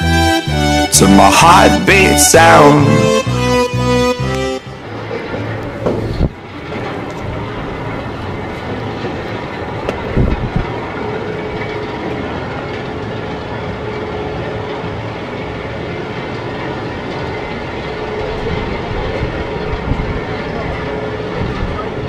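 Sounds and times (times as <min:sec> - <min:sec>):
steady hum: 0:00.0 - 0:22.0
roller coaster rattling on track: 0:04.8 - 0:22.0.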